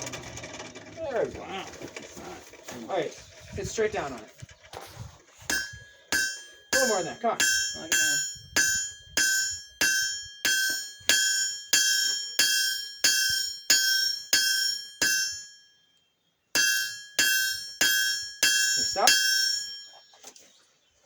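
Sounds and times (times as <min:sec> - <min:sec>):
hammer striking steel on anvil: 0:05.5 - 0:15.7, 0:16.6 - 0:20.0.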